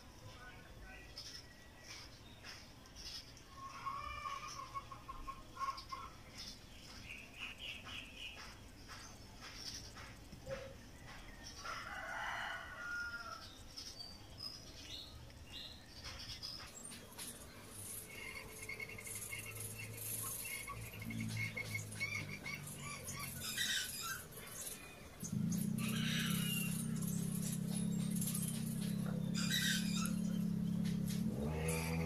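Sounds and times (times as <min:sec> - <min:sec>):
small birds chirping: 0:00.0 - 0:32.0
chickens clucking: 0:03.6 - 0:06.2
rooster crowing: 0:11.6 - 0:13.5, 0:25.3 - 0:28.7.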